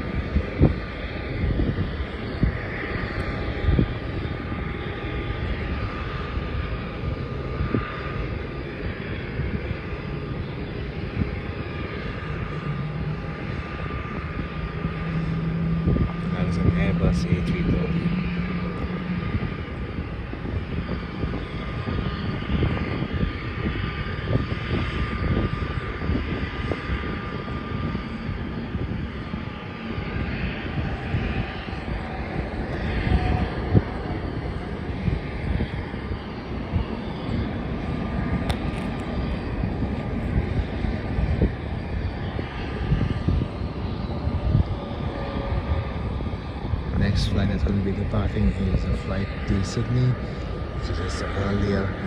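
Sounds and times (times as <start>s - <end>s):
jet engine high whine: 0.0s - 52.0s
jet engines rumbling: 0.0s - 52.0s.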